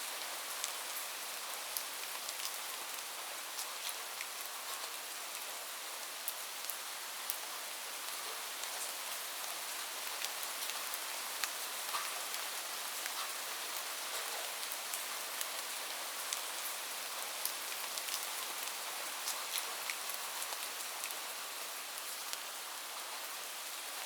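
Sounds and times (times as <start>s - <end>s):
steady rain hiss: 0.0s - 24.0s
raindrops ticking on surface: 8.1s - 21.2s.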